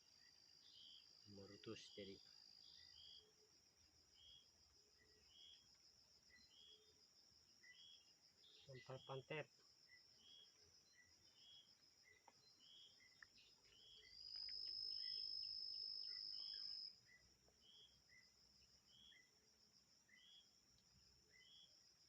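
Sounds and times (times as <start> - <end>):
insects trilling chorus: 0.0 - 22.0
two-note insect chirp: 0.0 - 22.0
single insect high whine: 12.6 - 18.3.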